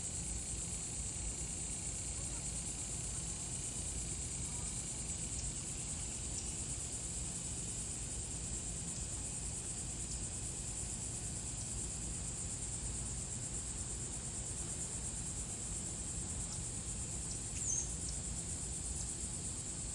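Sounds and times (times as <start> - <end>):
insect chorus droning: 0.0 - 19.9
faint bird chirp: 17.5 - 18.0.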